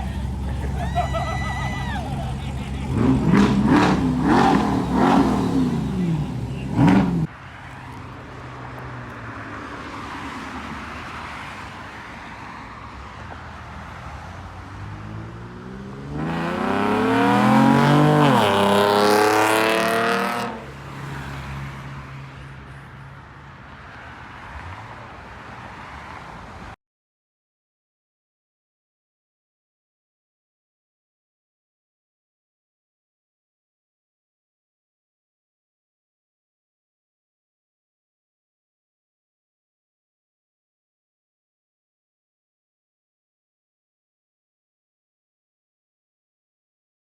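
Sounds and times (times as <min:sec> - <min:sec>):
car engine accelerating: 0:00.0 - 0:07.3, 0:13.5 - 0:21.6
engines idling: 0:00.0 - 0:09.3
crowd noise: 0:00.0 - 0:23.6
car engines revving: 0:00.0 - 0:26.8.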